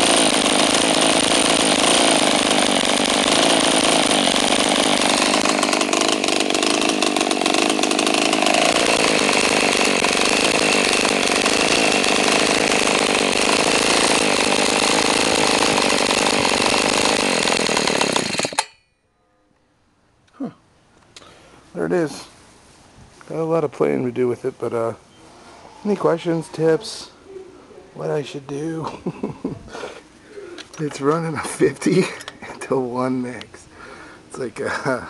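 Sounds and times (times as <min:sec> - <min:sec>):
small two-stroke scooter engine: 0:00.0 - 0:18.7.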